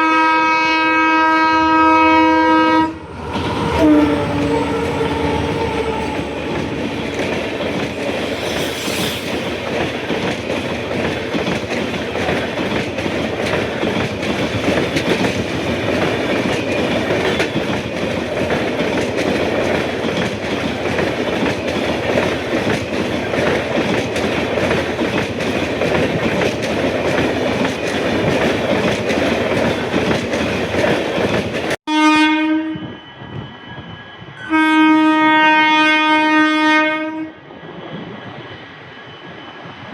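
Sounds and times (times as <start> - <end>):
locomotive horn blasts: 0.0 - 7.4, 31.9 - 33.0, 34.4 - 37.4
train rumbling past: 0.0 - 39.9.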